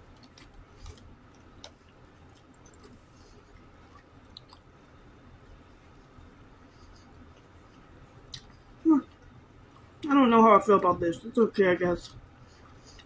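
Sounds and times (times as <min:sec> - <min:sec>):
quiet chewing: 0:00.1 - 0:04.8.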